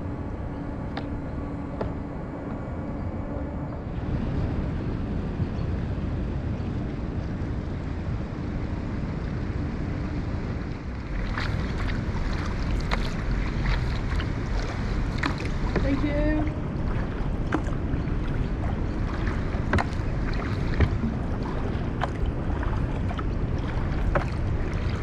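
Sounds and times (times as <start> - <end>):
faint steady hum: 0.0 - 25.0
wind buffeting microphone: 0.0 - 25.0
short splashes: 11.0 - 25.0.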